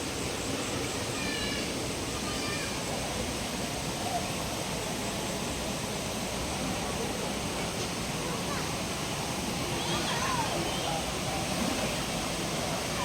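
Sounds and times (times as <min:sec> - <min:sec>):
river water rushing over rocks: 0:00.0 - 0:13.0
faint voices: 0:06.4 - 0:13.0.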